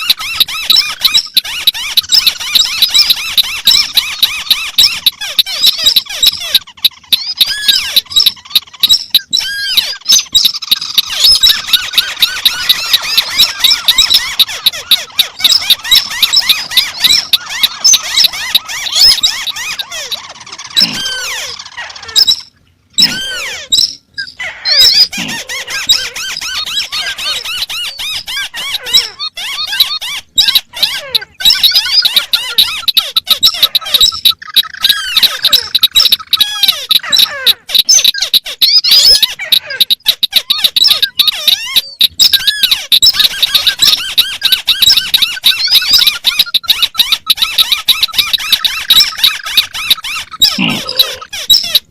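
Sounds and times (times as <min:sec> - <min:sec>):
crakes chattering and chirping: 0:00.0 - 0:51.9.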